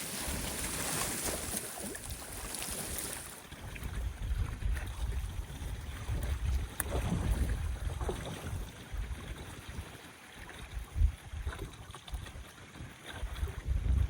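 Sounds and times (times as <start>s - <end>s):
waves washing on shore: 0.0s - 3.5s
wind buffeting microphone: 0.0s - 14.0s.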